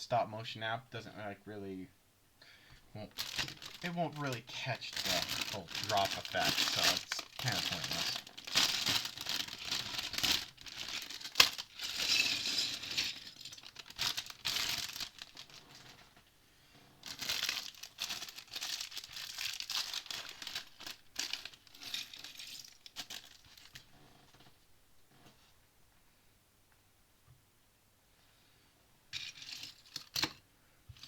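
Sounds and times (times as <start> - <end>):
plastic bag crinkling: 3.0 - 16.0, 17.0 - 23.8.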